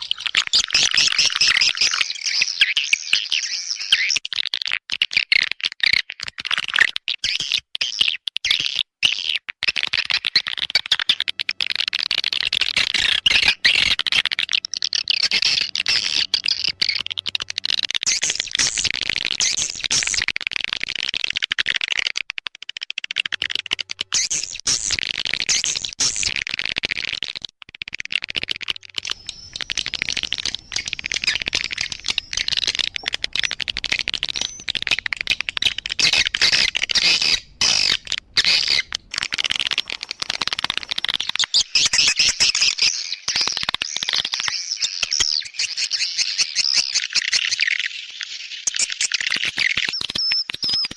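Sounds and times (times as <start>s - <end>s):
swiftlets chattering and twittering: 28.1s - 50.9s.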